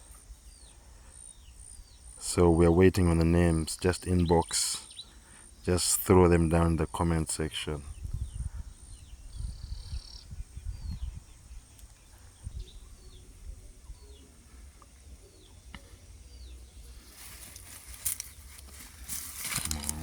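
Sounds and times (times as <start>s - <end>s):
small birds chirping: 0.0s - 20.0s
wind rumble on microphone: 7.8s - 14.1s
rustling hiss: 16.7s - 20.0s.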